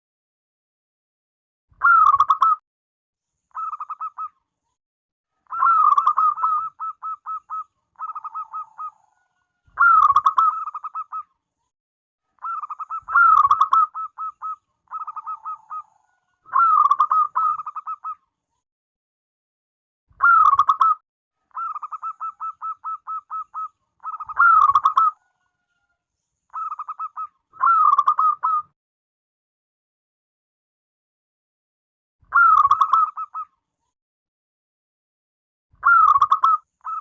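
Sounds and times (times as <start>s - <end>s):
dove cooing: 5.5s - 9.2s, 9.8s - 11.3s, 12.4s - 18.2s, 21.6s - 25.3s.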